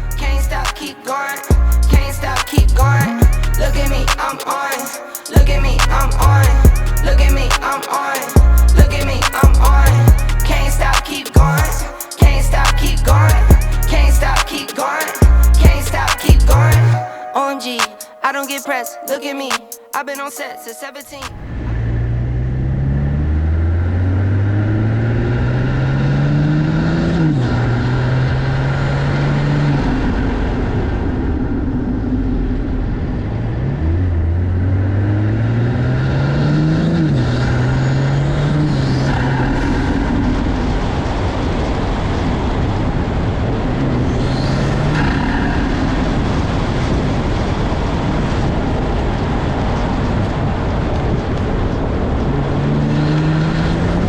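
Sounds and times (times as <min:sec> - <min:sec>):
car engine revving through gears: 0:21.8 - 0:29.9, 0:33.2 - 0:40.4, 0:52.2 - 0:54.0.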